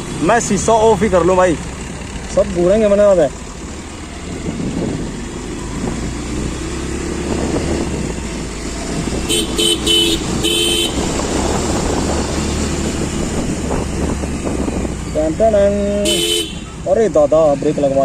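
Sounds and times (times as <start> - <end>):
engine and road noise: 0.0 - 18.0
vehicle horn honks: 9.3 - 11.1, 16.0 - 16.9.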